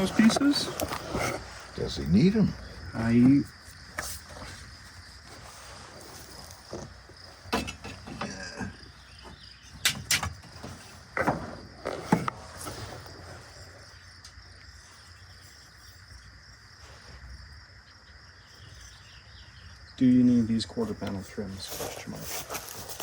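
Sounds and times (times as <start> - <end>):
crickets chirring: 0.0 - 23.0
sharp knocks and clatters: 7.5 - 12.4.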